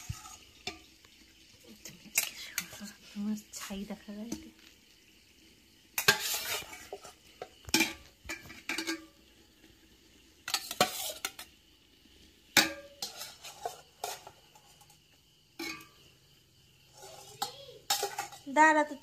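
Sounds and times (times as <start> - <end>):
metal spoon scraping cooking pot: 0.0 - 0.9, 6.0 - 9.1, 10.4 - 11.5, 12.6 - 15.0, 16.9 - 18.5.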